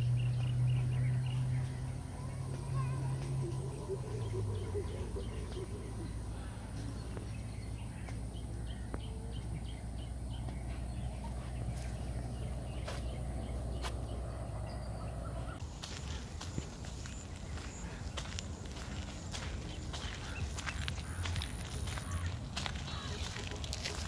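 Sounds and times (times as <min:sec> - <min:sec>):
steady low rumble: 0:00.0 - 0:24.0
bird calling high notes: 0:02.2 - 0:06.7.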